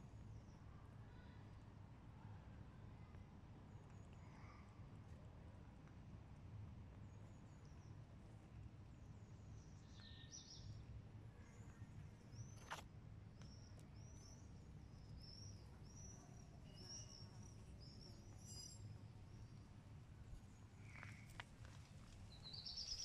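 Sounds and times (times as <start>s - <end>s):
bird chirping: 22.3s - 23.0s.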